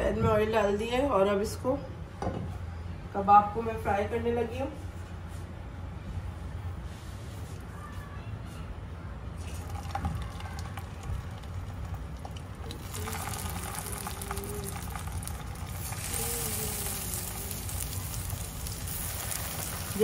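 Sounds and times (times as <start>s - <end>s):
patties sizzling in hot oil: 9.4s - 20.0s.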